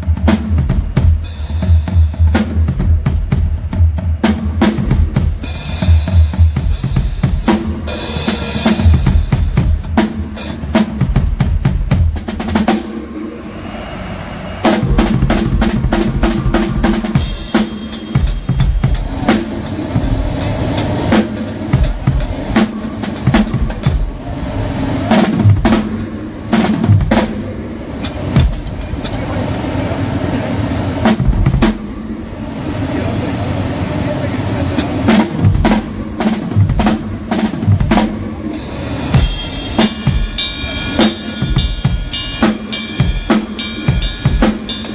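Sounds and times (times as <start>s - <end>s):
drum kit playing: 0.0s - 13.6s, 14.6s - 33.1s, 33.8s - 44.9s.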